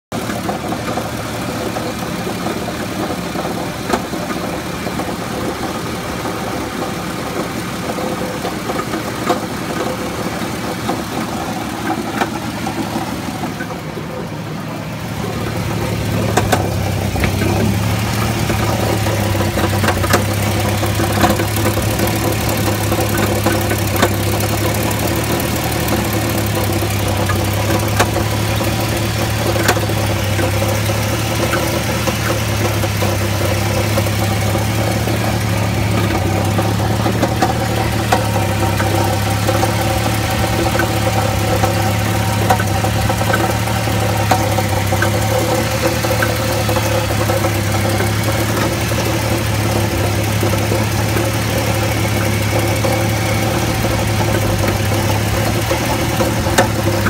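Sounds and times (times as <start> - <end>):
car engine running: 0.0 - 57.0
rattle of sharp ticks: 15.2 - 57.0.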